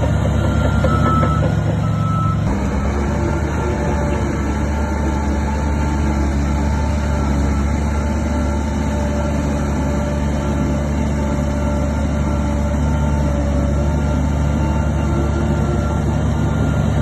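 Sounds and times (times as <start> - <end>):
diesel machinery engine rumble: 0.0 - 17.0.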